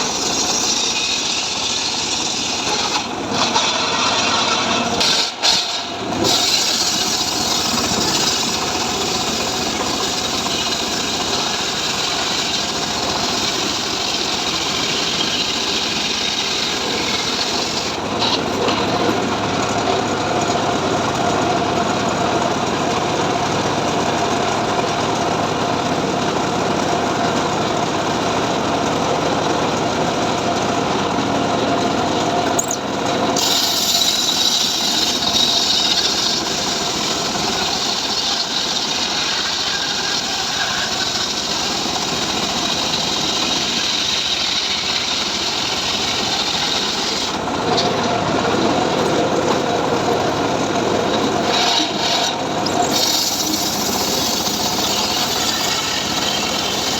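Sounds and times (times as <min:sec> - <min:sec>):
engine-powered saw cutting timber: 0:00.0 - 0:56.9.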